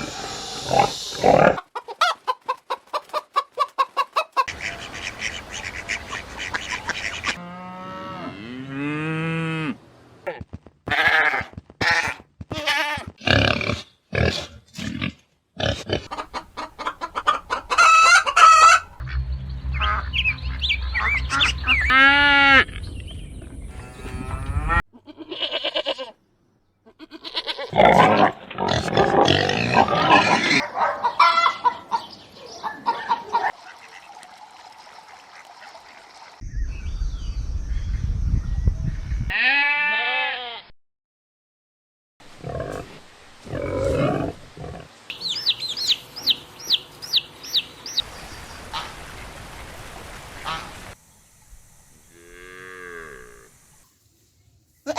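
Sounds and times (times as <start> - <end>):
poultry honking and clucking: 0.0 - 14.4, 15.6 - 22.7, 26.9 - 34.2
animals bleating: 10.9 - 13.6, 23.7 - 26.2, 26.9 - 30.6, 39.3 - 40.7.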